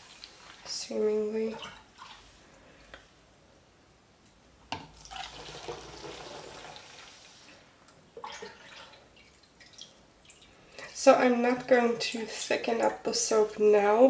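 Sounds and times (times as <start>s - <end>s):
liquid soap pouring and splashing: 0.0s - 2.3s, 4.9s - 7.6s, 8.2s - 10.7s.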